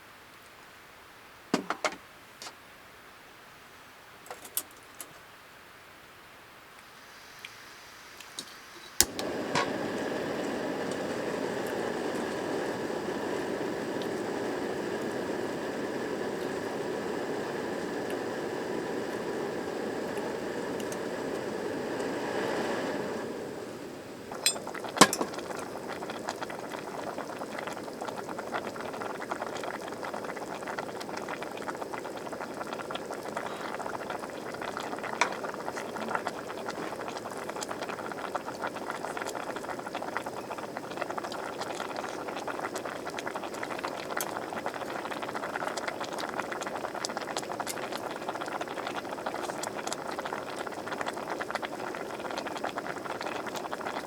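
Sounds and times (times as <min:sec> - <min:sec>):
pot of liquid boiling: 0:07.0 - 0:54.0
sharp clinks: 0:24.5 - 0:25.3.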